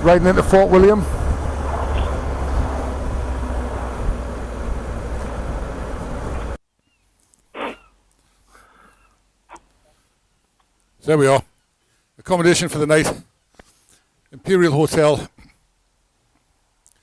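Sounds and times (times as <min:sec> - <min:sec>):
low motorcycle engine drone: 0:00.0 - 0:06.6
wind and road noise: 0:00.0 - 0:06.6.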